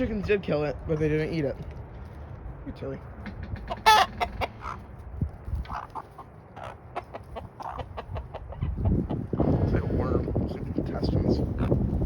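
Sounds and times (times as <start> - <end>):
chickens clucking and squawking: 3.3 - 12.0.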